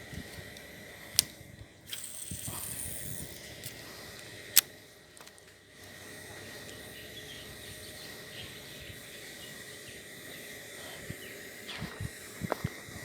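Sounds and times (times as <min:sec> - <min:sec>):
even hiss: 0:00.0 - 0:04.6
high insect drone: 0:01.9 - 0:04.2.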